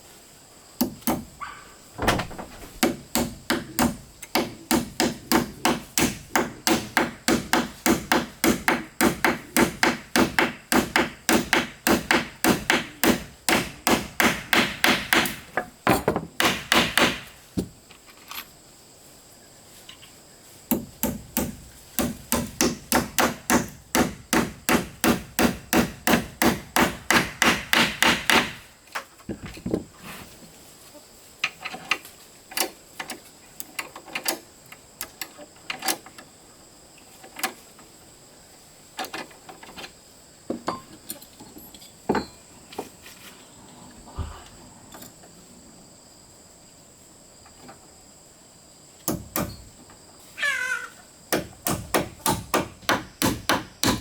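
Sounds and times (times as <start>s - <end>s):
hammer striking wood: 0.8s - 1.3s, 2.0s - 17.7s, 20.7s - 28.6s, 49.1s - 49.6s, 51.3s - 54.0s.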